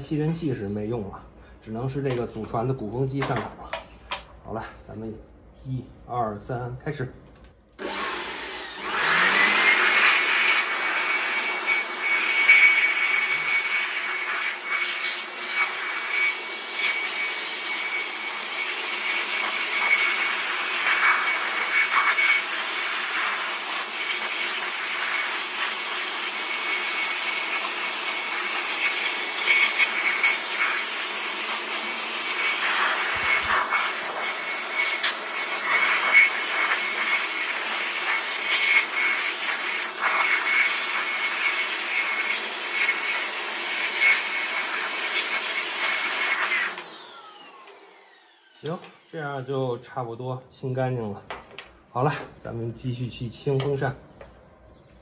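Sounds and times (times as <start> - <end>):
electric blower motor whine: 7.8 - 49.5.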